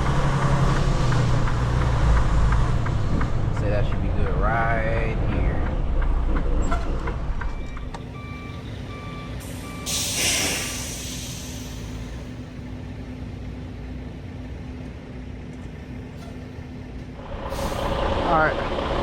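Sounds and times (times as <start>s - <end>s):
truck engine idling: 0.0s - 19.0s
electronic warning beeps: 7.4s - 10.1s
air brake hiss: 9.4s - 12.2s, 17.5s - 17.9s.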